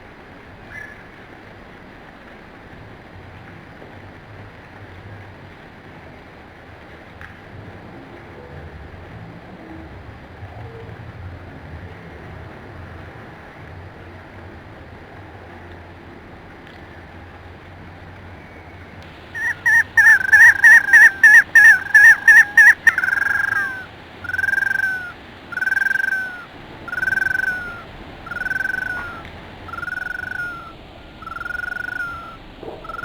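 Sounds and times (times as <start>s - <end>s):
animal calling: 19.1s - 33.0s.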